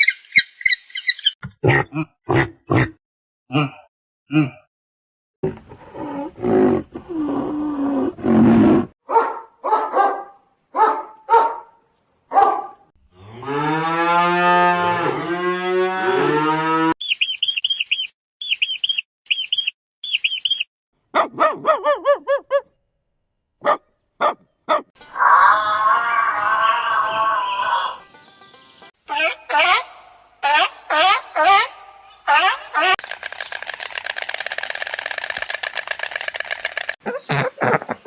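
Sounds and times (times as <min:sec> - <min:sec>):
very high chirps: 0:17.0 - 0:20.7
harsh animal call: 0:25.1 - 0:28.0.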